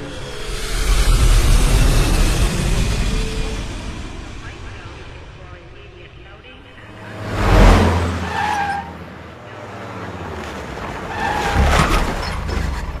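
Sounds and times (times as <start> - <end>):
truck engine surging: 0.0 - 13.0
tyres squealing: 7.4 - 9.2, 10.9 - 13.0.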